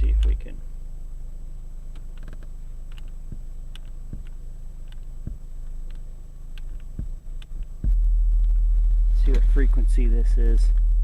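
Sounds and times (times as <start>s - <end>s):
low hum inside a car: 0.0s - 11.0s
light clicks and creaks: 1.9s - 3.2s.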